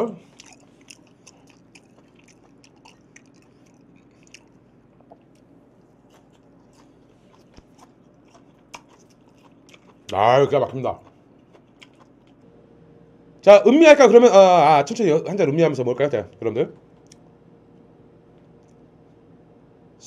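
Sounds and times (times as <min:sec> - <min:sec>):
person chewing food: 0:00.2 - 0:12.5.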